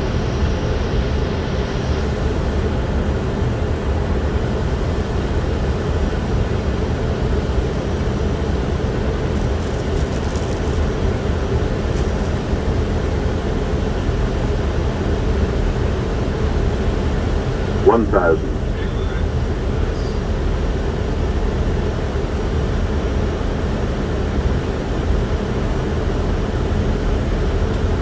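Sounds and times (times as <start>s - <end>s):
airflow and engine hum: 17.3s - 21.4s
mid-pitched drone: 17.8s - 20.2s.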